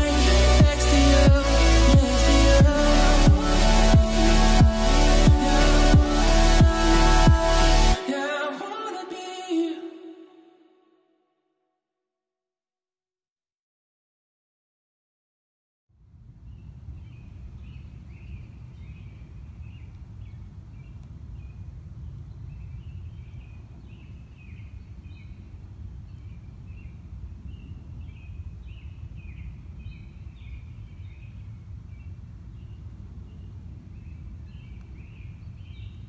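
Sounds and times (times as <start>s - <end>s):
steady low rumble: 0.0s - 8.0s
small birds chirping: 16.4s - 36.0s.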